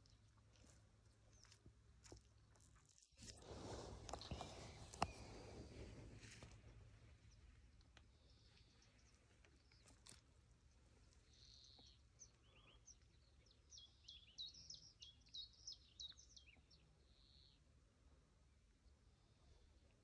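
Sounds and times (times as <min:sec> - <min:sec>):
songbird chirping and trilling: 0:04.1 - 0:05.8, 0:07.2 - 0:17.7.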